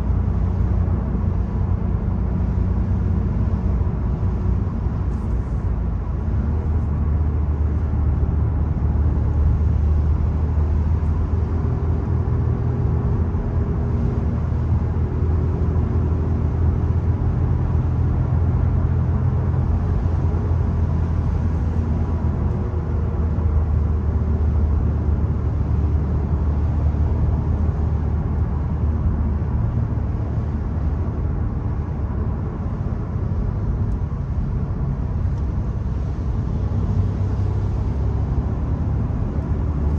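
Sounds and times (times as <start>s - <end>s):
car engine running: 17.2s - 39.9s
tyre and road noise: 18.9s - 39.9s.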